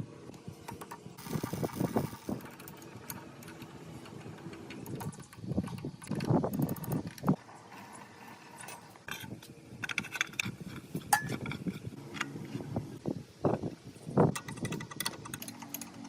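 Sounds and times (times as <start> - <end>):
metal tools clinking and scraping: 7.8 - 12.3.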